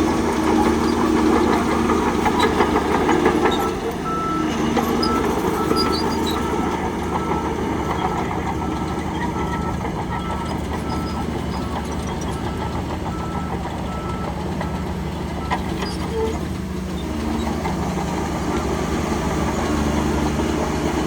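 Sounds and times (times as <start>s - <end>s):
heavy machinery diesel engine: 0.0s - 21.0s
reversing alarm beeps: 3.5s - 16.4s.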